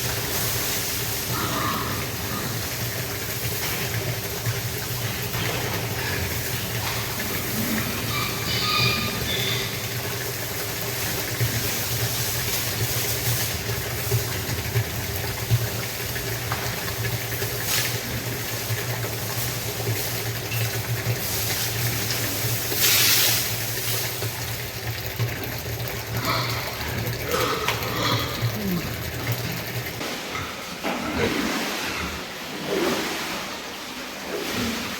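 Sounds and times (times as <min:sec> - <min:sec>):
water spraying: 0:00.0 - 0:24.9.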